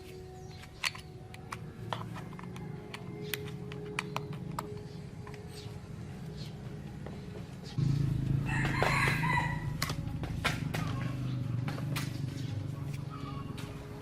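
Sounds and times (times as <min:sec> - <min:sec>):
steady low hum: 0:05.1 - 0:14.0
rooster crowing: 0:08.4 - 0:09.9.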